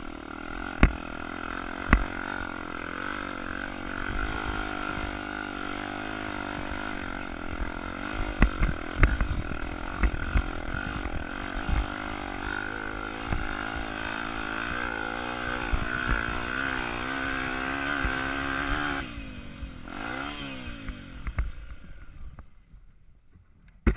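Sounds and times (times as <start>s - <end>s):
motorcycle engine revving: 0.0s - 22.7s.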